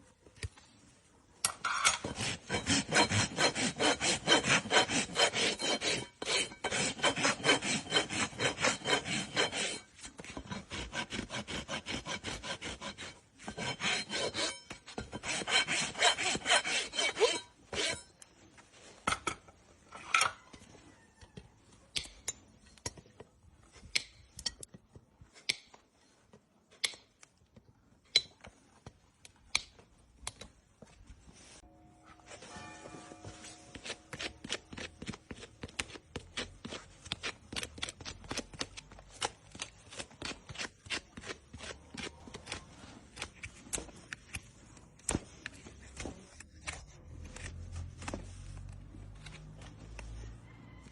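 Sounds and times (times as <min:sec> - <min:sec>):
hoof rasp filing a hoof: 0:01.7 - 0:18.2, 0:31.6 - 0:38.0.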